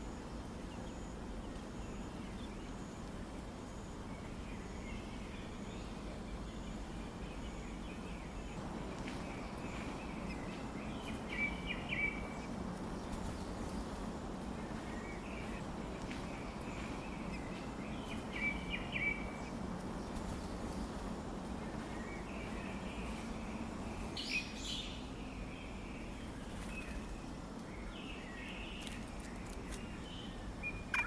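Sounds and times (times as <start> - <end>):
outdoor background hiss: 0.0 - 31.0
high-pitched bird chirps: 30.7 - 31.0.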